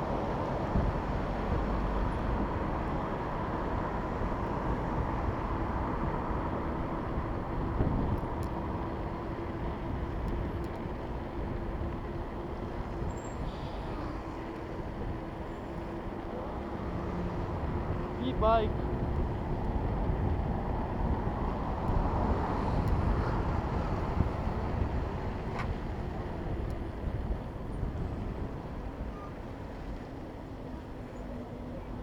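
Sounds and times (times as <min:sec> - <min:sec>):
road traffic noise: 0:00.0 - 0:32.0.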